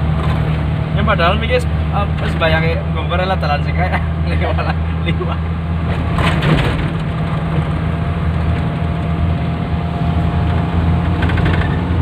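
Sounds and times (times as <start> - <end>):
car engine droning while driving: 0.0 - 12.0.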